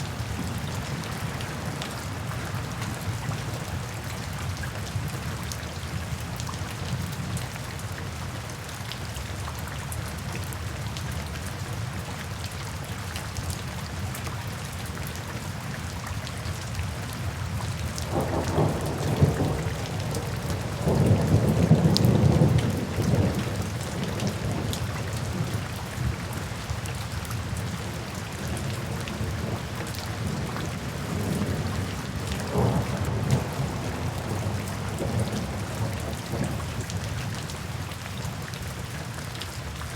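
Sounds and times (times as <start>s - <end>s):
rain falling: 0.0s - 39.9s
thunder rumbling: 30.2s - 36.6s.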